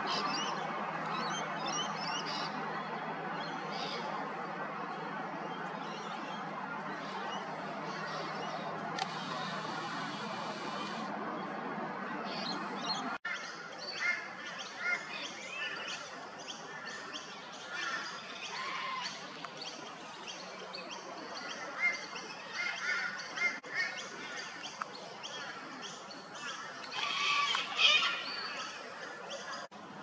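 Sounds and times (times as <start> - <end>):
birds chirping: 5.6 - 11.1.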